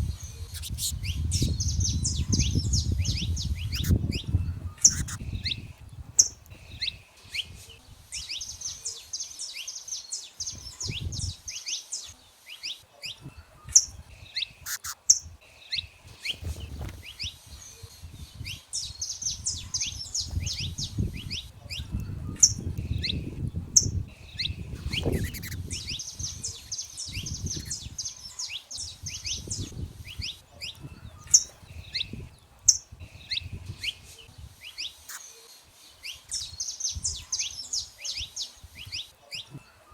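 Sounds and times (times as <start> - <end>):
finches chirping: 0.0 - 39.9
buzzy trilled bird phrase: 0.2 - 5.6, 24.3 - 28.2.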